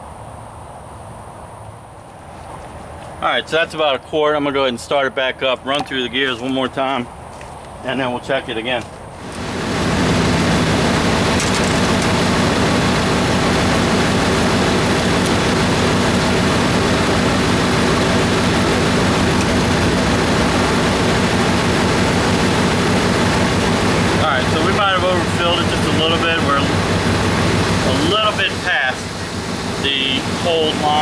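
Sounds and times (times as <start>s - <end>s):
truck engine running: 9.1s - 31.0s.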